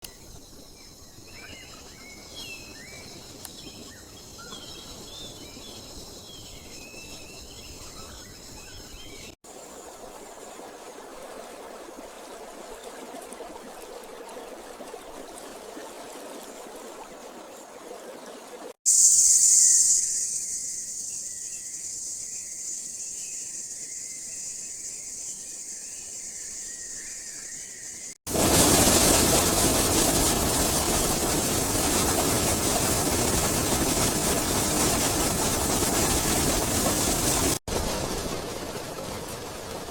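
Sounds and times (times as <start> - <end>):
bird chirps: 18.9 - 28.2
high insect drone: 18.9 - 28.2
loud high insect buzz: 18.9 - 28.2.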